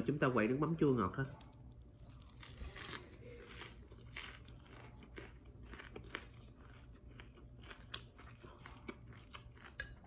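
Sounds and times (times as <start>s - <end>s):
crispy food crunching: 1.2s - 10.0s.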